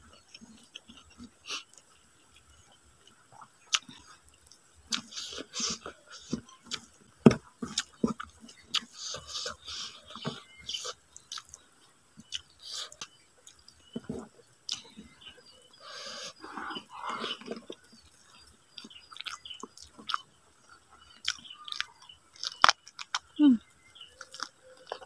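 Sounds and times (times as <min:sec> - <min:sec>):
wet chewing and lip smacks: 0:03.0 - 0:07.0, 0:07.7 - 0:14.0, 0:16.3 - 0:20.3, 0:21.0 - 0:23.4, 0:24.1 - 0:25.0.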